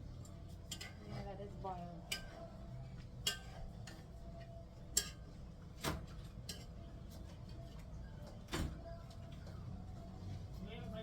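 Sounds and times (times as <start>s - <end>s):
utensils clicking on metal pot: 0.7s - 1.0s, 3.2s - 4.0s, 4.9s - 5.2s.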